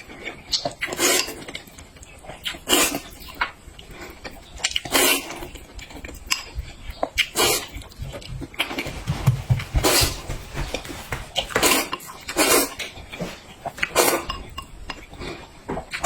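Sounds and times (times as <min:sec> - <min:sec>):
wet chewing: 0:00.0 - 0:09.2.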